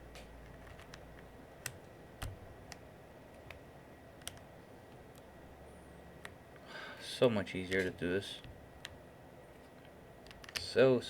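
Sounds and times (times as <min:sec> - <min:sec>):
keycaps clicking onto switches: 0:00.1 - 0:02.8, 0:04.2 - 0:05.3, 0:10.2 - 0:10.8.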